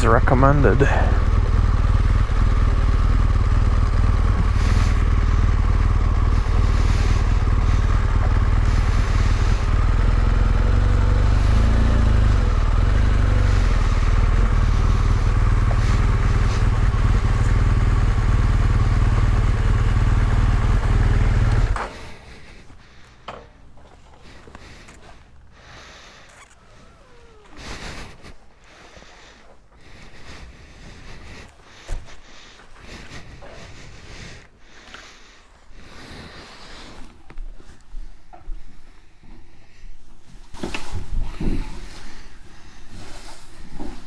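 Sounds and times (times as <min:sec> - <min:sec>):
motorcycle engine running: 0:00.0 - 0:28.3.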